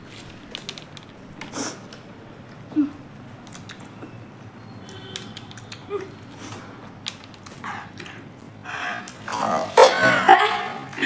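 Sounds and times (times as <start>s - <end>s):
chewing and sucking clicks: 2.9s - 4.1s, 4.8s - 9.8s.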